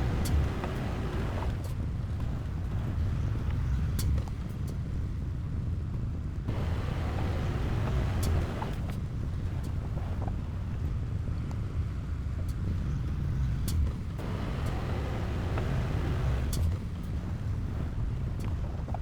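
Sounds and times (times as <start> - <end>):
diesel machinery rumbling: 0.0 - 1.6, 6.5 - 10.3, 12.7 - 18.9.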